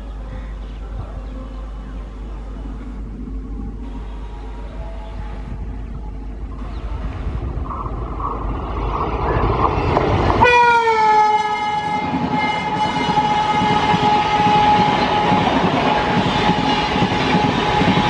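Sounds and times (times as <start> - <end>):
train running past: 0.0 - 18.0
locomotive horn blast: 10.4 - 18.0.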